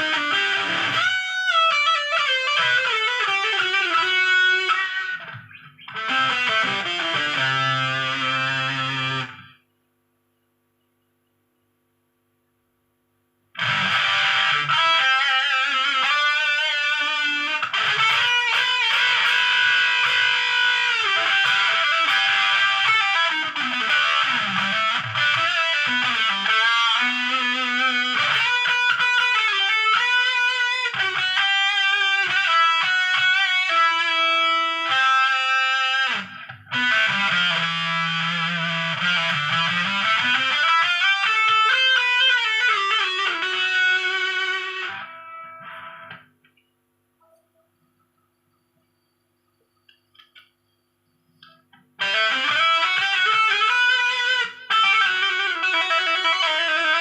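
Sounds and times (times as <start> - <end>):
distorted electric guitar: 0.0 - 9.6, 13.5 - 46.4, 51.4 - 57.0.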